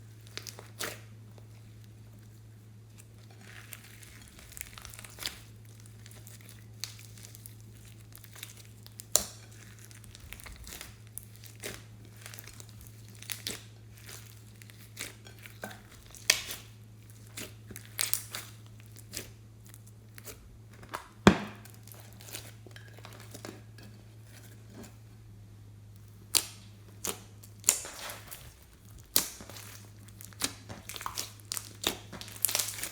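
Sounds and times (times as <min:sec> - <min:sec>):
slime squeezed and stretched: 0:00.2 - 0:01.1, 0:03.2 - 0:20.4, 0:26.1 - 0:32.9.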